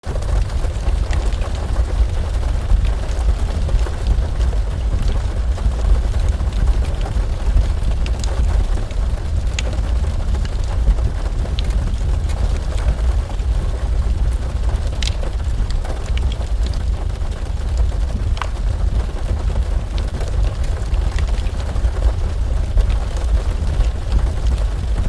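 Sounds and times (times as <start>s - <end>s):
deep low rumble: 0.0s - 25.0s
heavy rain: 0.0s - 25.0s
sharp drip ticks: 15.0s - 15.3s.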